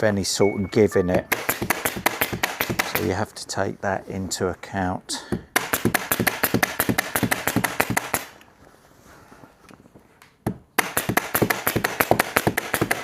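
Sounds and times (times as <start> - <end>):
staple gun firing: 1.3 - 3.1.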